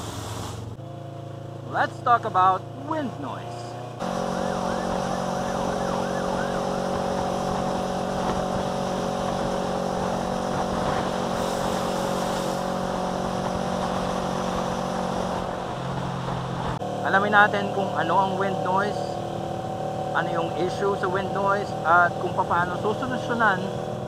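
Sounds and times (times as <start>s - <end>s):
engine hum: 0.0s - 24.0s
faint wavering siren-like tone: 4.0s - 7.1s.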